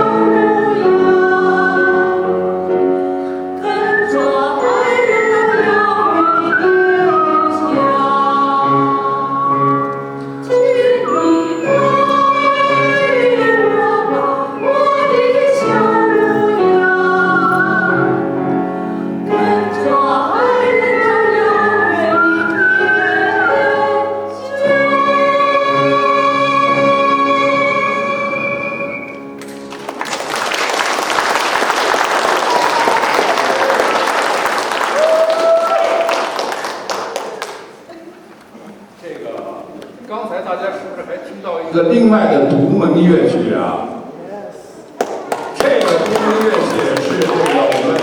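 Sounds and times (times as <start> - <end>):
instrumental accompaniment: 0.0 - 30.2.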